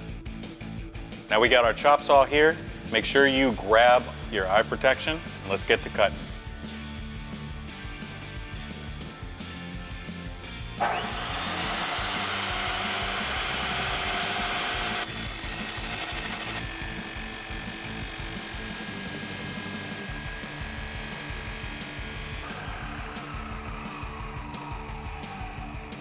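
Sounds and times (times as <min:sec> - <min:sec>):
background music: 0:00.0 - 0:26.0
chop saw cutting metal pipe: 0:10.8 - 0:23.9.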